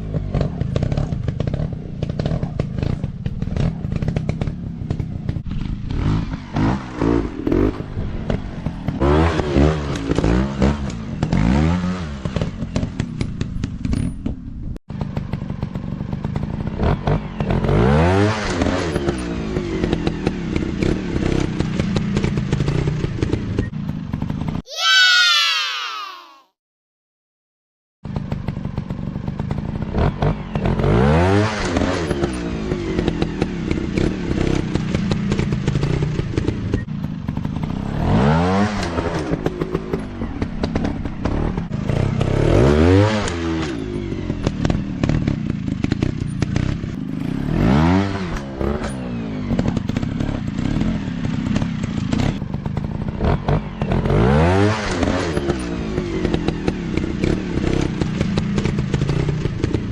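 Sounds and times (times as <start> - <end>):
dirt bike engines revving: 28.2 - 59.9.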